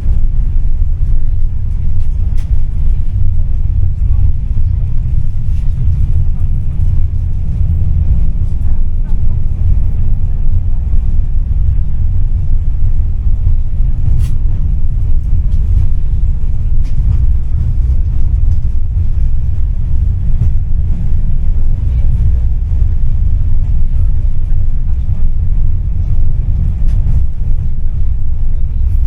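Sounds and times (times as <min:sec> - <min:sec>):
tram rumbling: 0:00.0 - 0:29.0.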